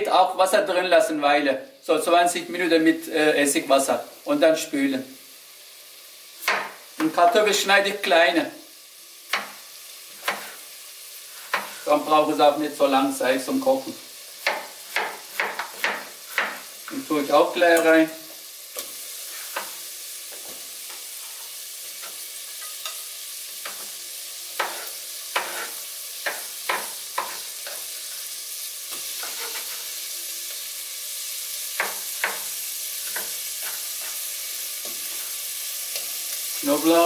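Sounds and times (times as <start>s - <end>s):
vegetables sizzling in oil: 0.0s - 37.0s
knife chopping on cutting board: 14.4s - 16.6s.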